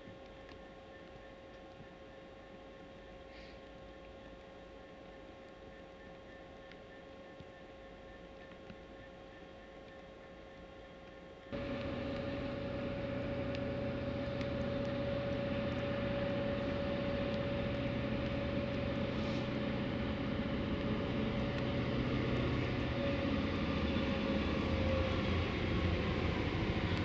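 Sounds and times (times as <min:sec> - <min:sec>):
diesel locomotives rumbling: 0:11.6 - 0:27.0.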